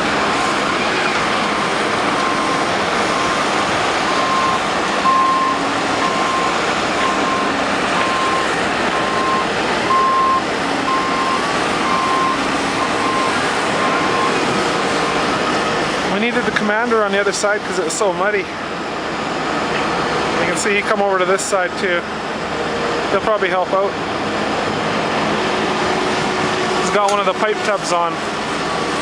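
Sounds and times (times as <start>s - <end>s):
reversing alarm beeping: 0.0s - 15.8s
heavy diesel equipment working: 0.0s - 29.0s.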